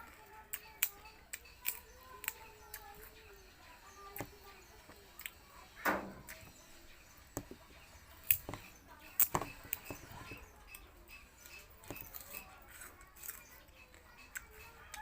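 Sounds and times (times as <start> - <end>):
sugarcane crunching while chewed: 0.1 - 3.2, 4.2 - 5.5, 7.4 - 15.0.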